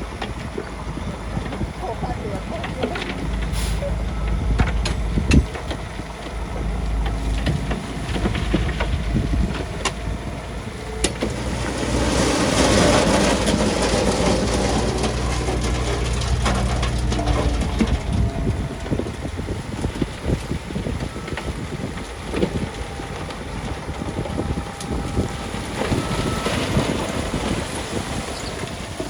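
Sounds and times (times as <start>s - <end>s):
diesel machinery running: 0.0s - 29.0s.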